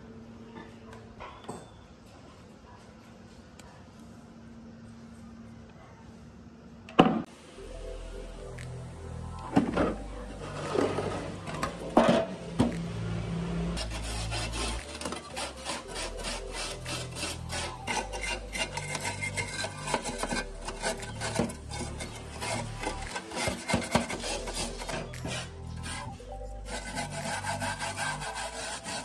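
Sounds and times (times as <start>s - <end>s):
rasping on metal: 13.8s - 29.0s.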